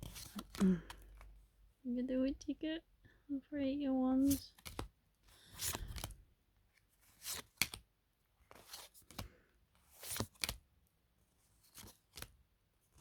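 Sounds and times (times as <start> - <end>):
cards rustling and flicking: 0.0 - 1.4, 4.2 - 6.2, 6.8 - 10.7, 11.5 - 13.0.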